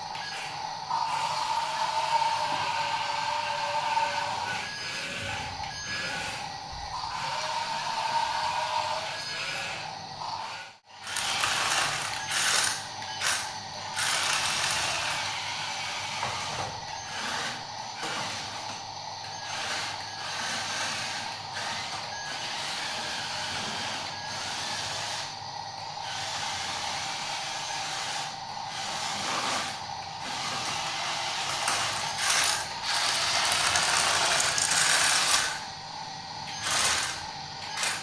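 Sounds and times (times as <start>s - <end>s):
toy electric motors whirring: 0.0s - 35.8s, 36.5s - 38.0s.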